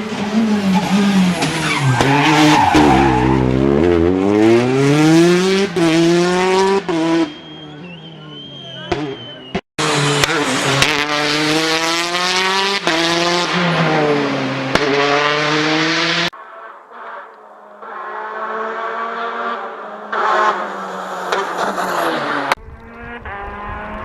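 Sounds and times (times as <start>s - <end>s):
rally car approaching: 0.0s - 24.0s
rally car engine at full throttle: 0.0s - 24.0s.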